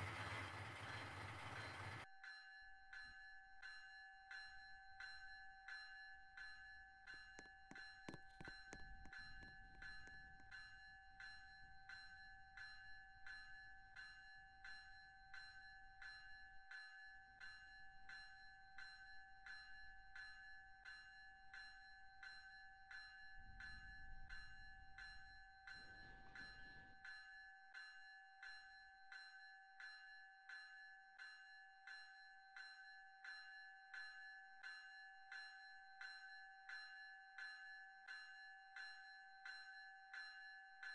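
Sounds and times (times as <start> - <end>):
railroad crossing bell ringing: 0.0 - 2.0.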